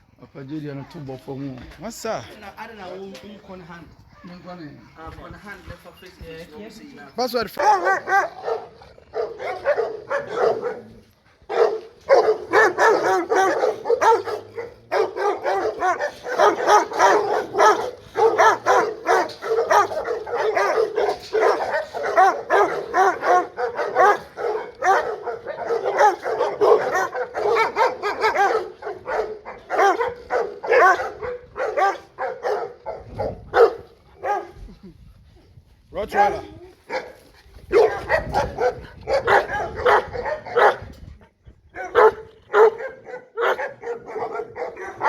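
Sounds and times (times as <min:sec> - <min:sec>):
dogs barking rapidly: 0:07.4 - 0:34.6, 0:36.0 - 0:41.0, 0:41.7 - 0:45.0.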